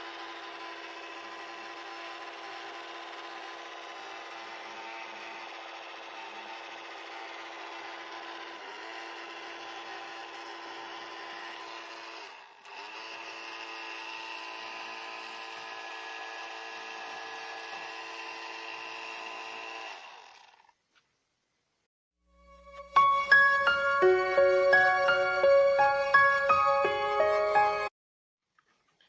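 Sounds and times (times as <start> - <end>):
small electric motor whining: 0.0 - 20.8.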